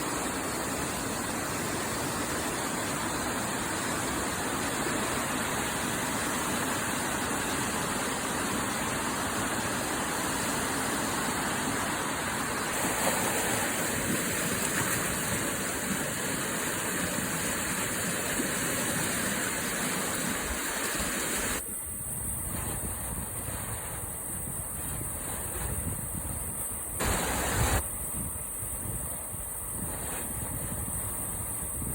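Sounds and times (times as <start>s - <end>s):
whitewater rushing: 0.0s - 21.7s, 27.0s - 27.8s.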